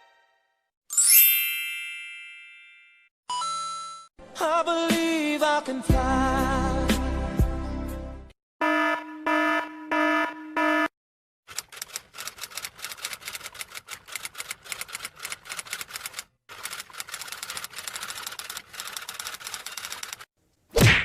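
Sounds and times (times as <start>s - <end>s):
rapid mechanical clicking: 11.5s - 20.3s.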